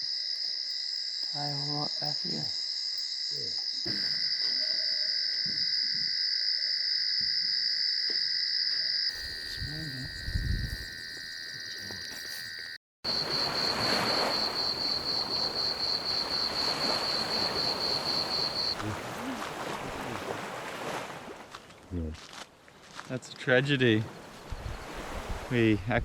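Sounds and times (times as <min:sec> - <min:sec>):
sharp pulsed insect call: 0:00.0 - 0:18.8
insects chorus: 0:00.0 - 0:19.2.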